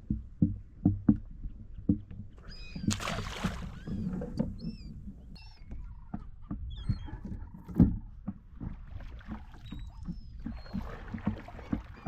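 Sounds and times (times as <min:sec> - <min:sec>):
water slapping kayak hull: 0:00.0 - 0:12.0
birds calling: 0:01.3 - 0:08.2, 0:09.3 - 0:12.0.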